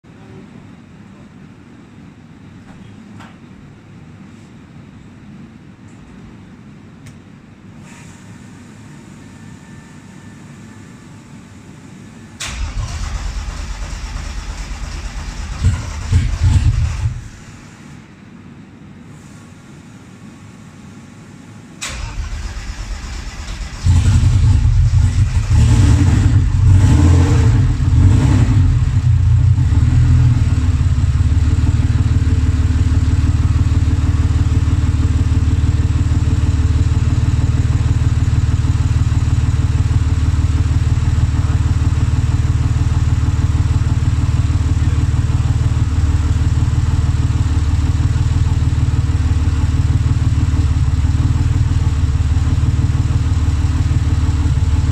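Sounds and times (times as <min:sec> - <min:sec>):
car engine surging and idling: 0:08.9 - 0:18.0, 0:21.8 - 0:54.9
car engine starter cranking: 0:12.4 - 0:17.2, 0:21.8 - 0:24.0.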